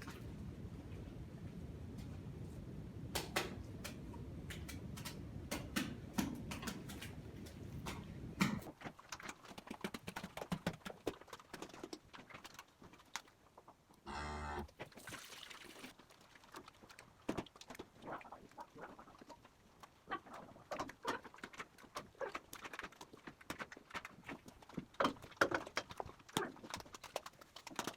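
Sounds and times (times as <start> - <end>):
hooves clopping on concrete: 19.8 - 27.9.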